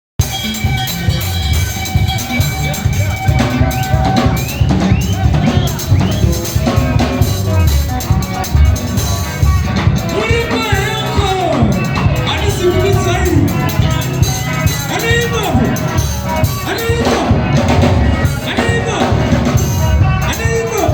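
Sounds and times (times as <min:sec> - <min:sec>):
drum kit beat: 0:00.2 - 0:20.9
live band playing: 0:00.2 - 0:20.9.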